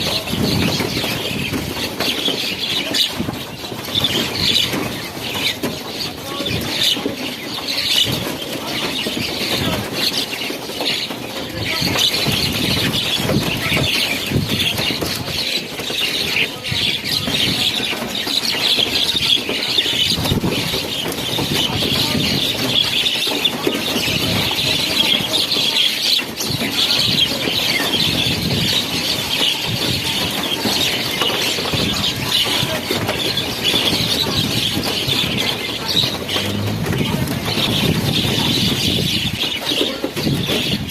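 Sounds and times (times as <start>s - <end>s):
flock of birds chirping: 0.0s - 40.9s
low uneven rumble: 34.2s - 39.2s.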